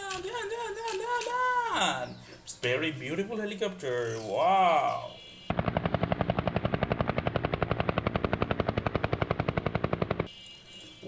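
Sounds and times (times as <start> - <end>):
helicopter rotor chopping: 5.5 - 10.3.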